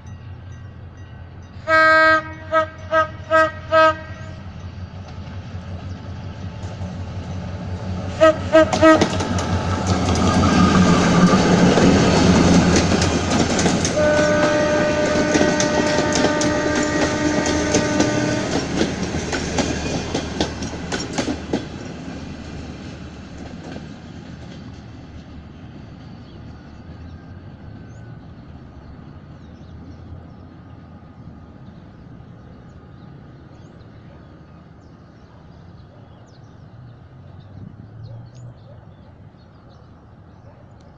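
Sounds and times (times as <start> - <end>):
locomotive engine rumble: 0.0 - 40.4
train horn blast: 1.6 - 4.6, 8.1 - 9.3, 13.8 - 18.8
train wheels clattering: 8.5 - 28.1.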